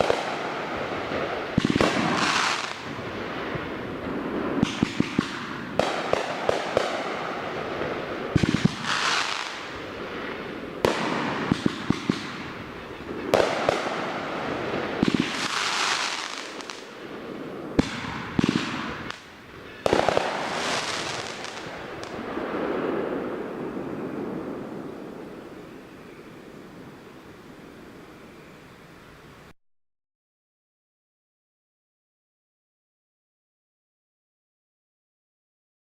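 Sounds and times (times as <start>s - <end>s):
firework bursts: 0.0s - 28.5s
crackling hiss: 0.0s - 29.6s.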